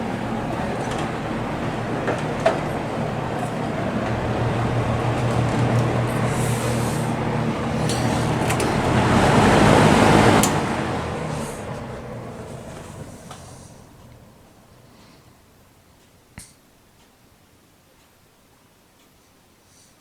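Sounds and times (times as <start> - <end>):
fan switch click: 0.0 - 11.9
box fan running: 0.0 - 17.5.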